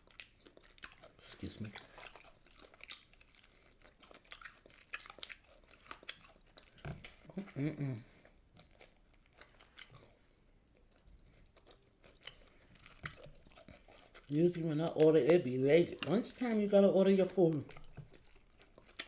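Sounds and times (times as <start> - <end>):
chewing and crunching food: 0.0 - 19.0.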